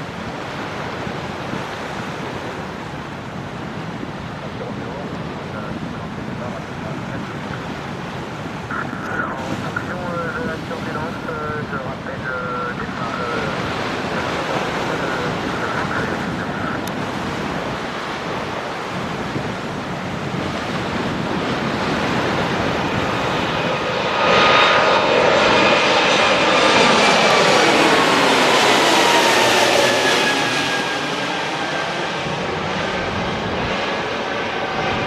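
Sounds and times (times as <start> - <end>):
jet engines at takeoff power: 0.0 - 35.0
whining engine tones: 23.7 - 35.0.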